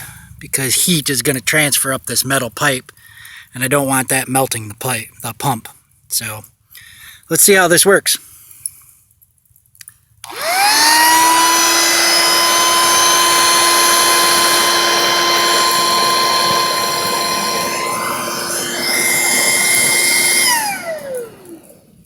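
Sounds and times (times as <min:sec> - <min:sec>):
electric pump motor whining: 0:10.2 - 0:22.0.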